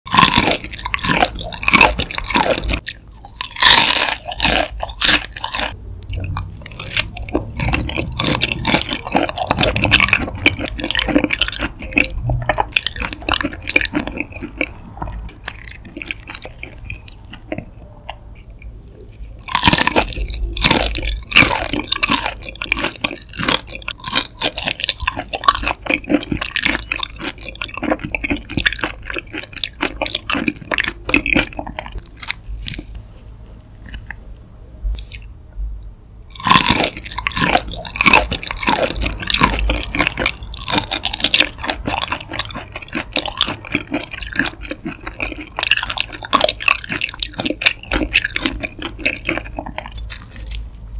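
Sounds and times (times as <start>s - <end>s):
chewing shrimp: 0.1s - 33.0s, 34.9s - 35.3s, 36.3s - 50.9s.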